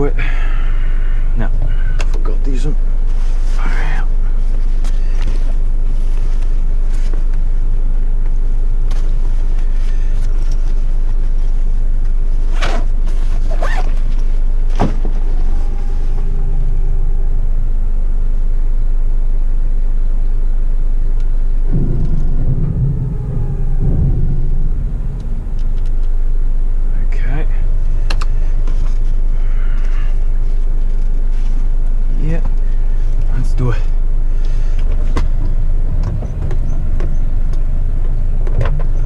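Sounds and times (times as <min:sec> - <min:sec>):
truck diesel engine rumbling: 0:14.0 - 0:39.0.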